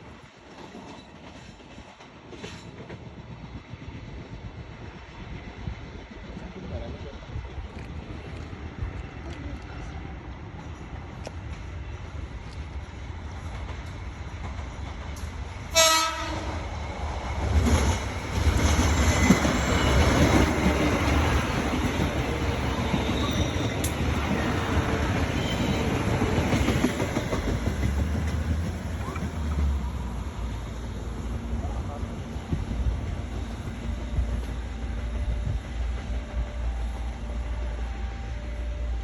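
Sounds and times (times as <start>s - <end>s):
train passing on rails: 0.0s - 39.0s
train horn blast: 15.7s - 16.6s.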